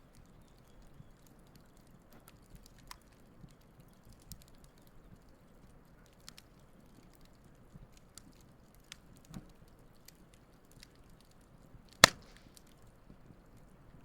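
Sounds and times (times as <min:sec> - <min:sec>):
campfire crackling: 0:00.0 - 0:14.0
loud sharp pop: 0:12.0 - 0:12.5.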